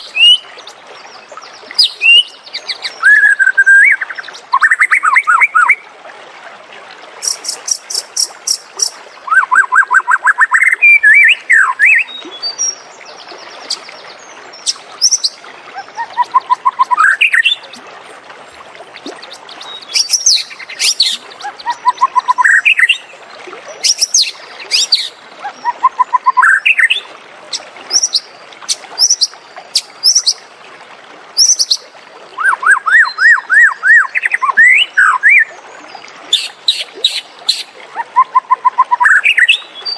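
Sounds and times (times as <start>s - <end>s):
bird singing trills and whistles: 0.0s - 0.8s, 1.8s - 5.8s, 7.2s - 12.8s, 14.6s - 17.8s, 19.0s - 23.1s, 23.8s - 27.0s, 32.4s - 35.5s, 38.2s - 39.9s.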